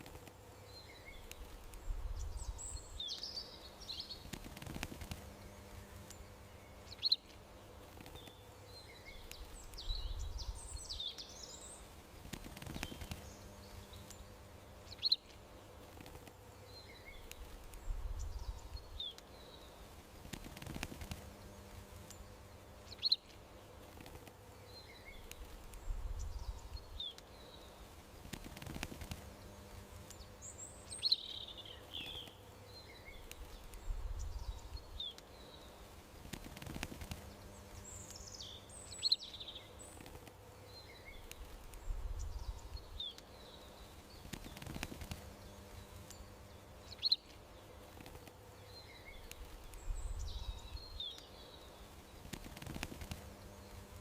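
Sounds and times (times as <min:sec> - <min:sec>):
faint steady hum: 0:00.0 - 0:54.0
songbirds chirping: 0:00.0 - 0:54.0.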